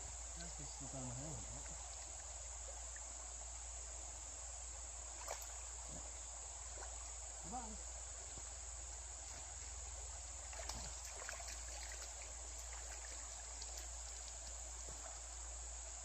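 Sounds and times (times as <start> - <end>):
creek water running: 0.0 - 16.0
high insect drone: 0.0 - 16.0.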